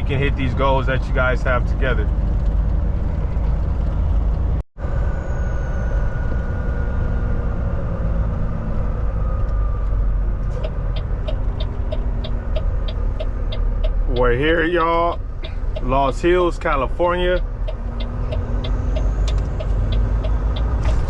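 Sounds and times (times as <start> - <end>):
road noise: 0.0 - 21.0
truck diesel engine drone: 0.0 - 21.0
turn signal ticking: 9.4 - 21.0.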